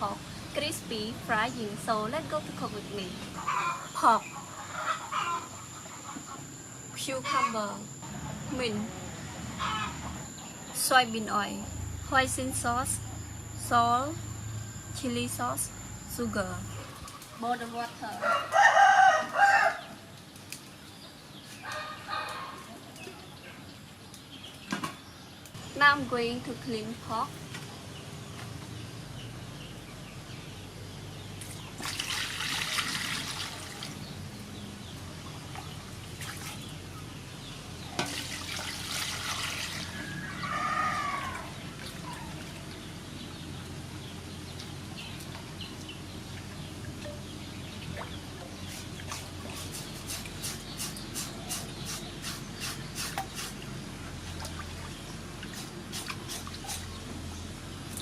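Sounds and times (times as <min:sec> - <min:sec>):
water splashing and pouring: 0:31.8 - 0:34.0, 0:38.0 - 0:40.0.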